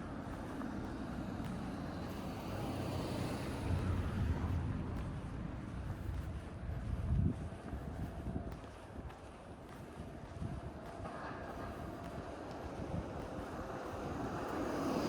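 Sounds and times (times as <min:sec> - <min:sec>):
car passing with tyre hiss: 0:00.5 - 0:04.8, 0:11.0 - 0:15.0.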